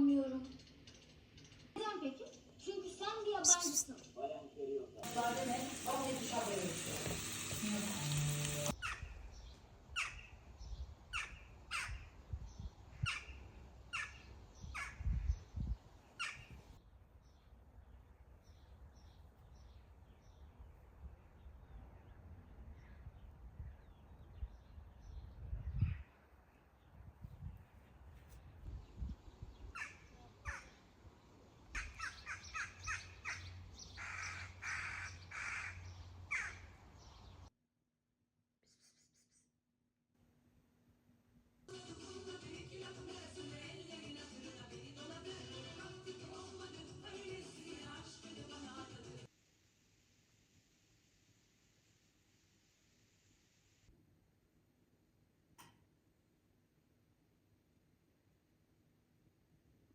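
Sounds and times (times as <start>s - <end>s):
bird downward-sweeping calls: 3.4s - 3.9s
bird's harsh calls: 3.4s - 4.0s, 10.0s - 10.4s, 29.7s - 30.8s, 31.7s - 36.7s
faint high bird chirps: 3.4s - 4.2s.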